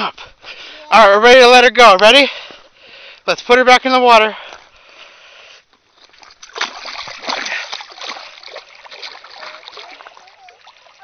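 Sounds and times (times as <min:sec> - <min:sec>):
water splashing and sloshing: 0:05.8 - 0:11.0.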